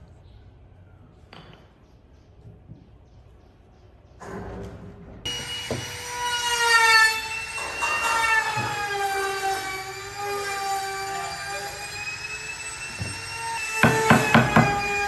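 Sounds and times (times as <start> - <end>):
high-pitched mechanical whine: 5.3 - 14.0.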